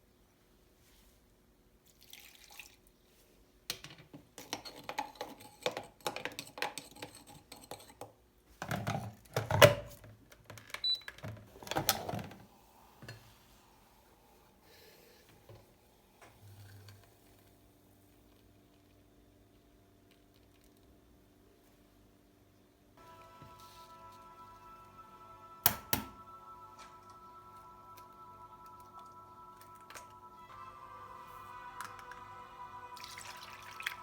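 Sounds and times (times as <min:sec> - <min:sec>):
tap water running: 0:32.9 - 0:34.0.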